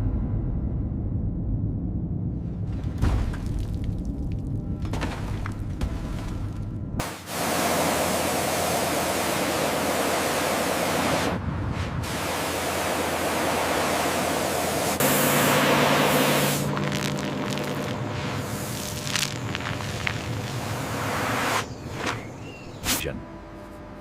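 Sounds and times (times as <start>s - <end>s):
low steady hum: 0.0s - 24.0s
hissing spray: 7.0s - 11.4s, 12.0s - 21.7s.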